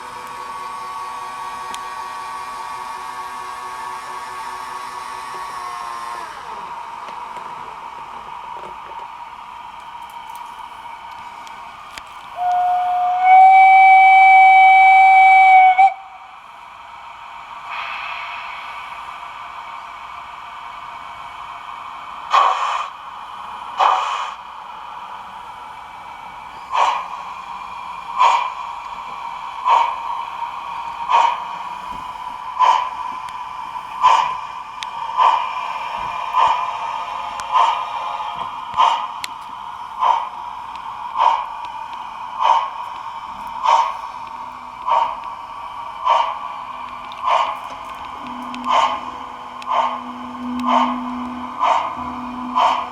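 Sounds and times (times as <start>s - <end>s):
steam exhaust chuffs: 12.3s - 16.3s, 16.9s - 24.5s, 26.6s - 52.9s
steam whistle blast: 12.4s - 16.3s, 48.2s - 52.9s
steady tone: 46.2s - 52.9s.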